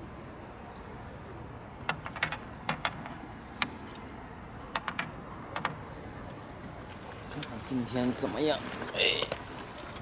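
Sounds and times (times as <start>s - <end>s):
sharp clicks and taps: 4.7s - 6.7s.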